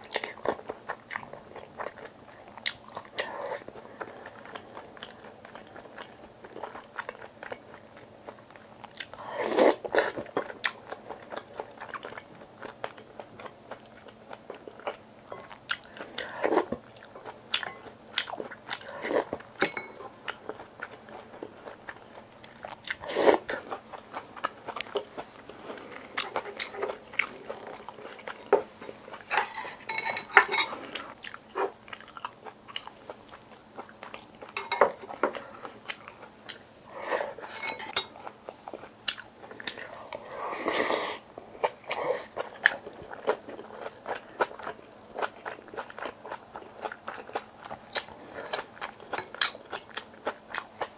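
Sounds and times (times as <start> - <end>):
chewing and biting food: 0.0 - 36.7, 37.4 - 40.3, 41.4 - 50.9.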